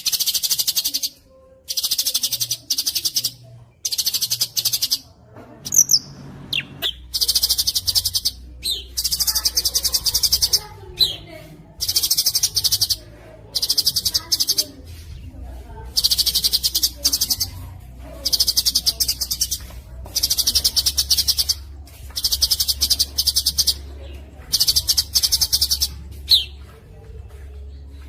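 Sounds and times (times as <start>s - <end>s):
songbird trilling: 5.7s - 11.2s, 15.9s - 17.6s, 18.2s - 21.6s, 22.2s - 23.9s.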